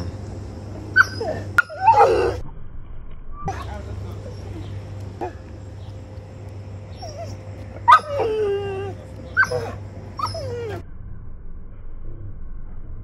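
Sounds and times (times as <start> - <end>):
low steady hum: 0.0 - 13.0
dog whining and yelping: 0.9 - 2.4, 6.9 - 10.8.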